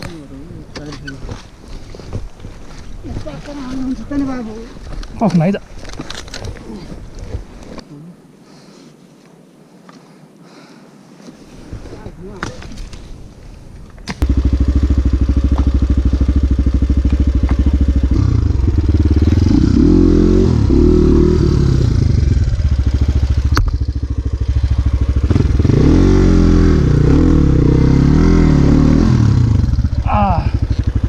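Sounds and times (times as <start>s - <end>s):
dirt bike engine revving: 14.2s - 31.0s.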